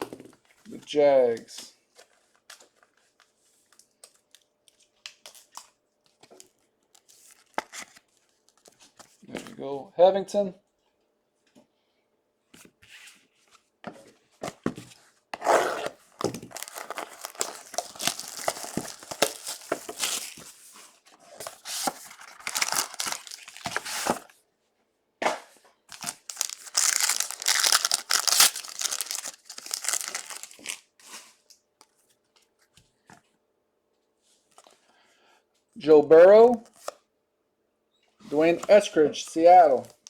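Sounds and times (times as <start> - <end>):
plastic wrapping tearing and crinkling: 15.7 - 20.4, 21.6 - 24.2, 25.9 - 30.9.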